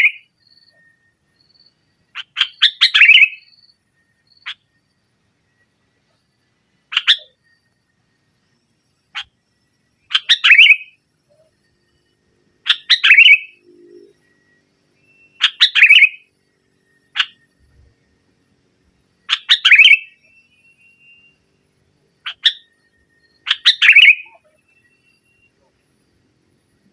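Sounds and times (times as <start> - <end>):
bulbul calling: 0.0 - 0.9, 2.1 - 3.5, 6.8 - 7.6, 9.1 - 9.4, 10.0 - 16.4, 17.0 - 17.9, 19.2 - 21.6, 22.2 - 25.8.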